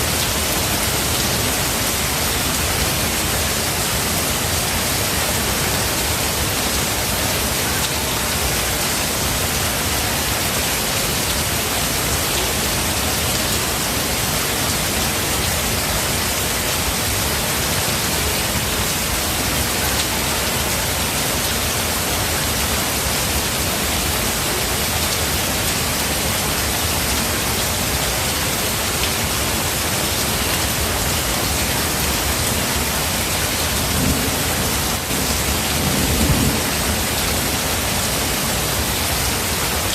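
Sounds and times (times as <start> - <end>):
rain falling in forest: 0.0 - 39.9.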